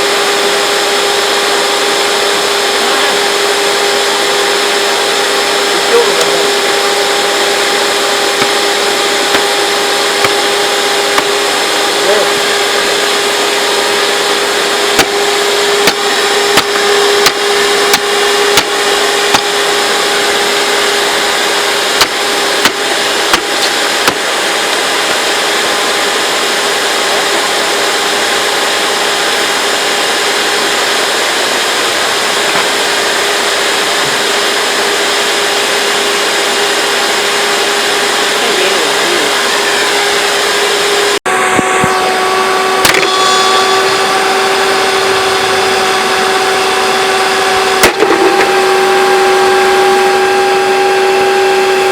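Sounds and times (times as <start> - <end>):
vacuum cleaner motor running: 0.0 - 51.9.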